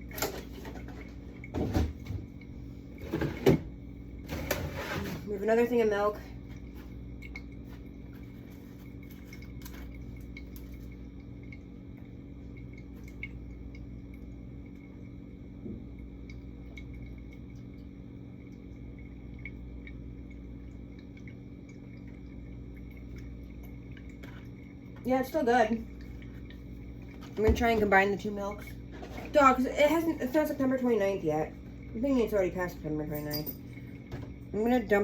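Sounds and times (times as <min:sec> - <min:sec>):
low hum: 0:00.0 - 0:35.0
bottles clinking: 0:33.0 - 0:33.8.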